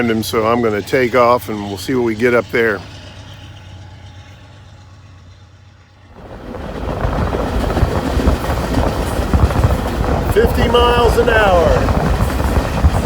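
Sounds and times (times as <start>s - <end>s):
vehicle low hum: 0.0s - 13.0s
road and wind noise rushing: 6.1s - 13.0s.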